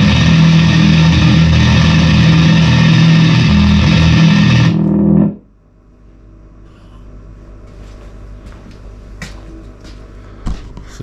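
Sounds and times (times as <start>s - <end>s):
fuzzed bass guitar notes: 0.0s - 5.5s
low amp hum: 0.0s - 11.0s.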